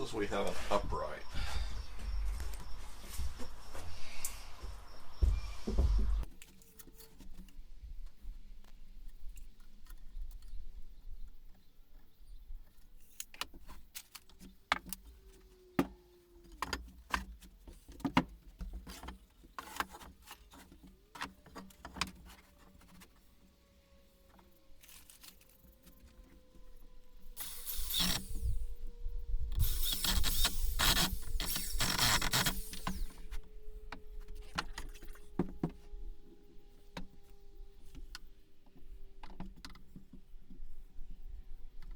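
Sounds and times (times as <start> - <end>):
power drill driving screws: 27.4 - 28.8, 29.6 - 33.3.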